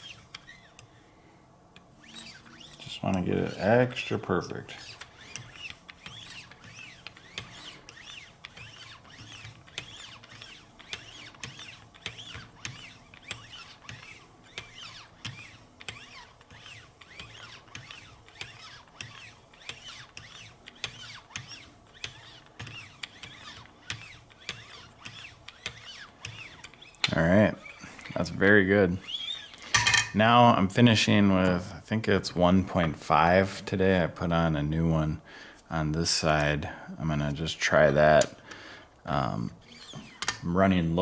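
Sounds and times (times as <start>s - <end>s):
abrasive paddles stroking a blade: 0.0s - 1.0s, 1.8s - 30.2s.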